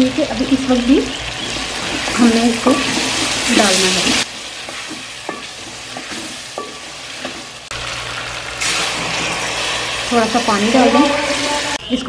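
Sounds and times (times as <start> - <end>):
water hissing in hot pot: 0.0 - 11.8
chicken sizzling in pot: 0.0 - 12.0
wooden spoon knocking on pot: 1.8 - 3.3, 4.6 - 7.5.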